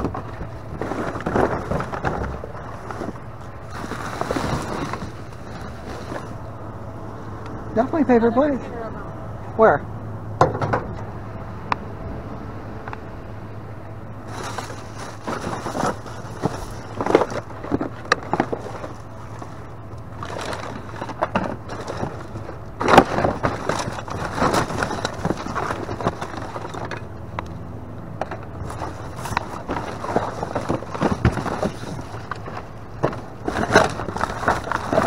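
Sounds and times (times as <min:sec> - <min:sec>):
items knocking and clattering: 0:00.0 - 0:06.4, 0:10.4 - 0:10.9, 0:14.3 - 0:19.6, 0:20.2 - 0:27.1, 0:28.2 - 0:35.0
plastic bags rustling: 0:00.0 - 0:06.6, 0:14.2 - 0:27.2, 0:28.5 - 0:35.0
low steady hum: 0:00.0 - 0:35.0.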